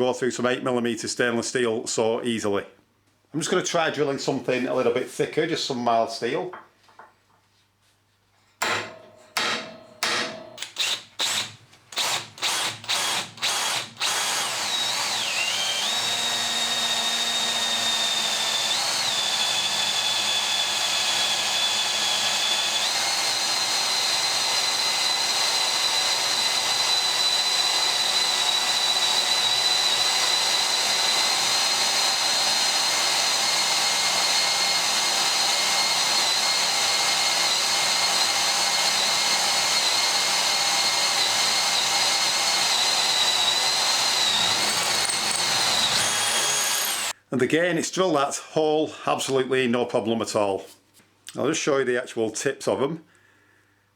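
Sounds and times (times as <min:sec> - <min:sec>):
electric drill drilling into steel: 0:10.3 - 0:47.2.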